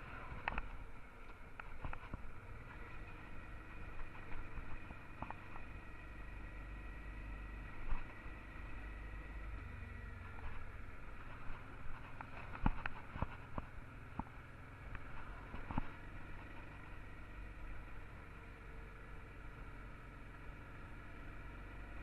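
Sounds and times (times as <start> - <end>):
muffled motorcycle engine hum: 0.0 - 22.0.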